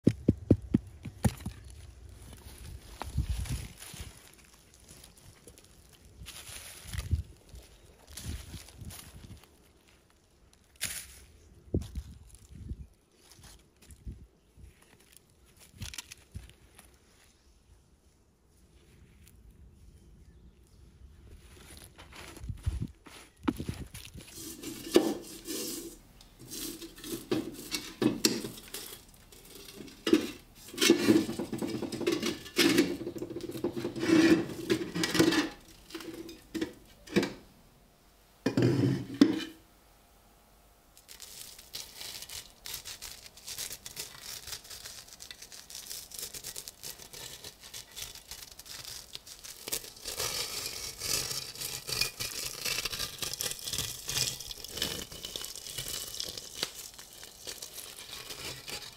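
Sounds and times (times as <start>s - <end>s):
metal helmet scraping and knocking: 22.0s - 37.5s, 38.5s - 39.6s.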